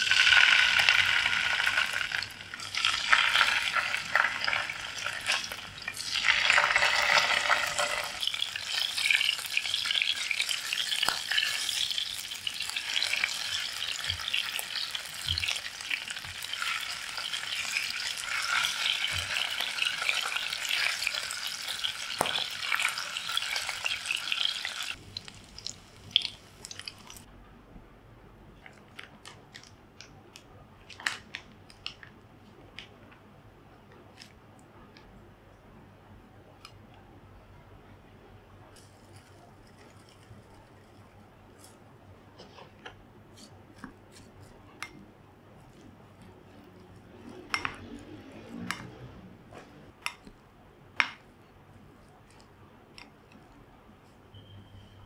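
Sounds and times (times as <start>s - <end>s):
fish sizzling in hot oil: 0.0s - 27.3s.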